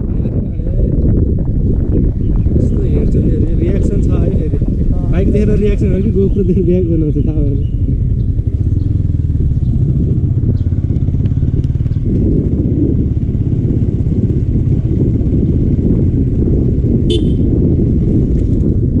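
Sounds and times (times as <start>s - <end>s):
motorcycle engine at speed: 0.0s - 19.0s
wind buffeting microphone: 0.0s - 19.0s
high-pitched horn beep: 17.1s - 17.5s.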